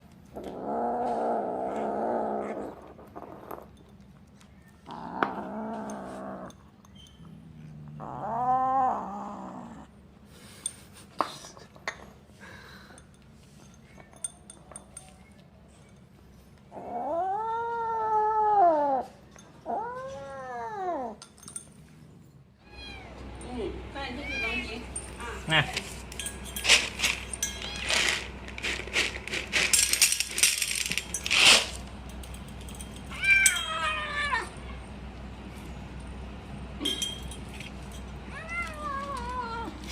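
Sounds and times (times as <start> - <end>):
kitten growling: 0.3 - 3.7, 4.8 - 6.7, 7.3 - 10.0, 16.7 - 21.2.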